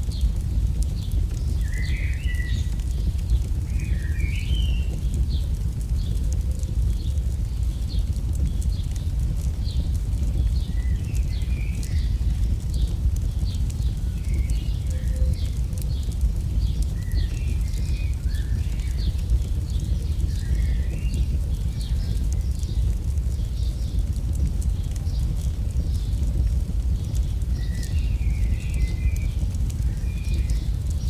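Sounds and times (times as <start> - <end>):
campfire burning rumble: 0.0 - 31.0
fire crackles and pops: 0.0 - 31.0.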